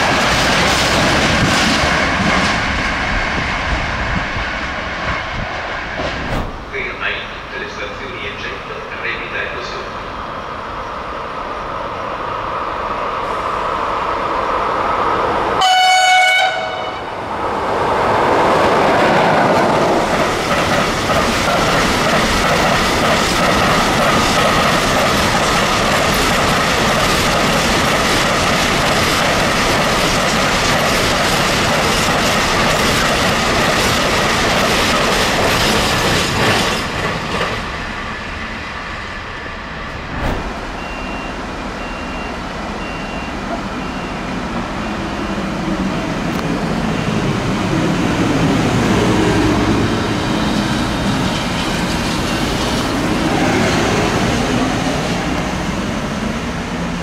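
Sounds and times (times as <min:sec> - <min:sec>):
train horn blast: 0:15.6 - 0:17.2.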